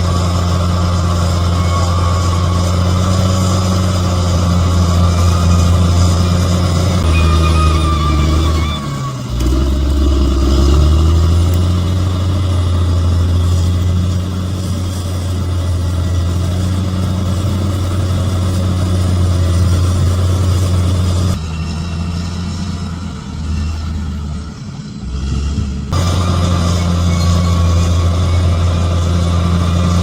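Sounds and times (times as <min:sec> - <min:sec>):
bulldozer diesel engine drone: 0:00.0 - 0:30.0.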